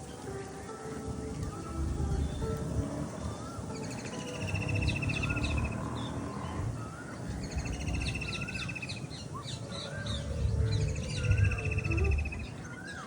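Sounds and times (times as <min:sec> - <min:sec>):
bird trill: 0:00.0 - 0:13.0
low background rumble: 0:00.0 - 0:13.0
low wavering bird whistle: 0:00.0 - 0:13.0
high bird chirps: 0:01.4 - 0:13.0.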